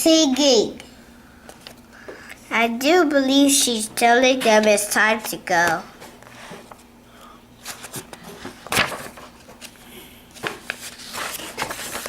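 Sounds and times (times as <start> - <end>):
paper pages rustling: 6.1 - 6.9, 7.6 - 12.0.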